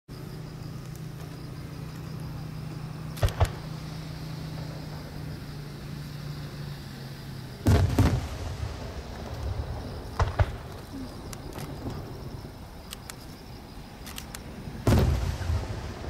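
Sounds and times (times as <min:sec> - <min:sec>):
sharp firework reports: 0:07.6 - 0:11.9, 0:14.8 - 0:16.0
firework booms with rumbling tail: 0:07.6 - 0:12.7, 0:14.8 - 0:16.0.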